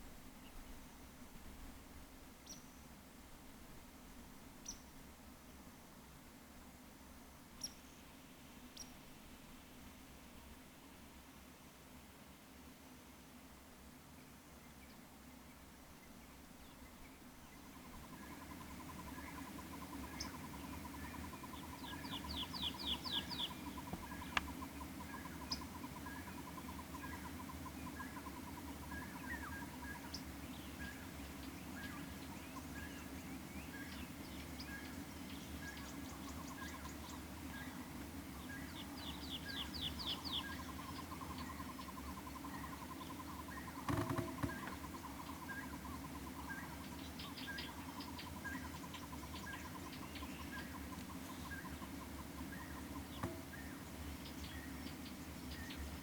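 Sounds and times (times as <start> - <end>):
brief knock: 43.9 - 44.8, 53.2 - 53.6.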